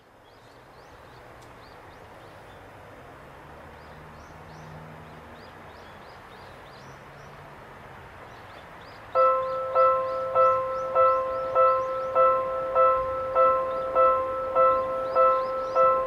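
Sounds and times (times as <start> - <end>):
background hiss: 0.0 - 16.0
birds chirping: 3.7 - 7.5, 8.2 - 16.0.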